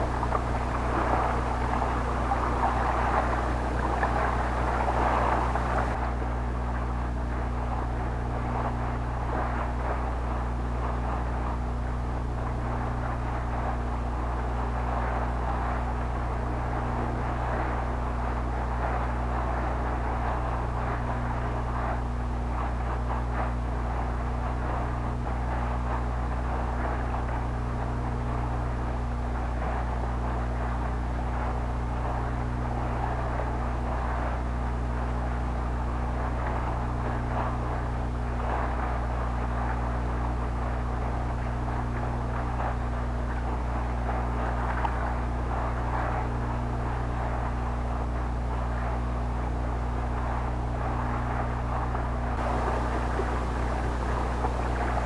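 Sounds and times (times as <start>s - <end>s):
engine drone: 0.0s - 6.2s, 52.3s - 55.0s.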